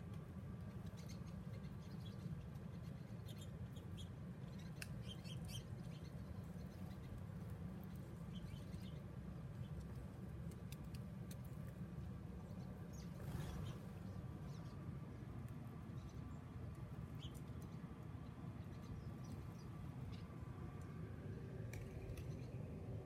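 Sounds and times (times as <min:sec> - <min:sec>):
small birds chirping: 0:00.0 - 0:23.0
steady low rumble: 0:00.0 - 0:23.0.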